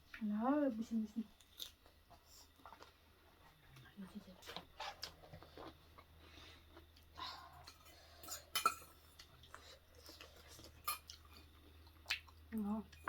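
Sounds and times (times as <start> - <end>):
cutlery clinking on dishes: 8.2 - 9.1.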